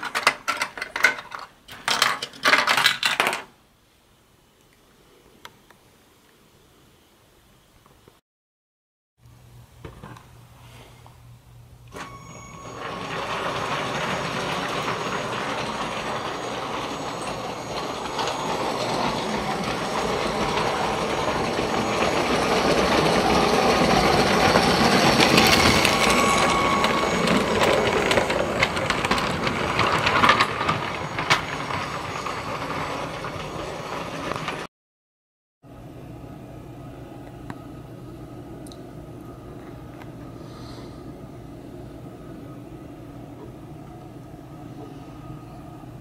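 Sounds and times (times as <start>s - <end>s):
train rushing past: 12.4s - 34.7s.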